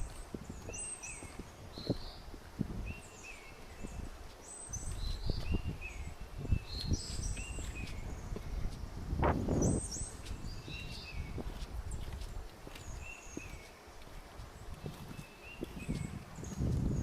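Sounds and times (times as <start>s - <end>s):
footsteps on forest trail: 0.0s - 17.0s
birds whistling: 9.5s - 11.5s.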